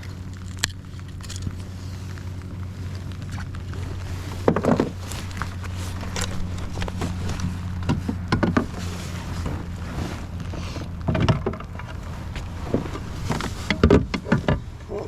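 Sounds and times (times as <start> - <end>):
low motor hum: 0.0 - 15.0
knocks and clatter: 3.2 - 15.0.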